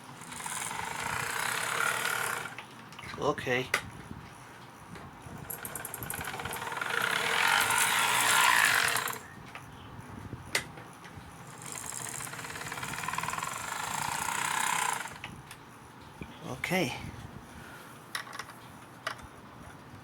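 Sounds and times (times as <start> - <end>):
model locomotive motor whirring: 0.0 - 2.6, 5.4 - 9.3, 11.4 - 15.4.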